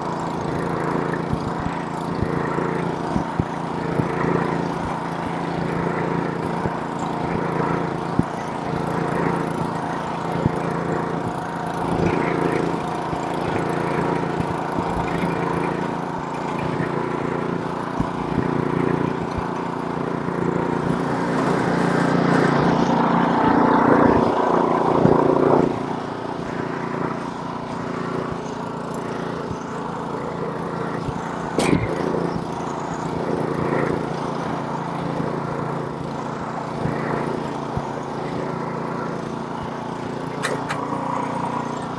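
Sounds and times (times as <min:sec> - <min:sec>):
snowblower engine running: 0:00.0 - 0:41.9
sharp click: 0:40.3 - 0:41.6.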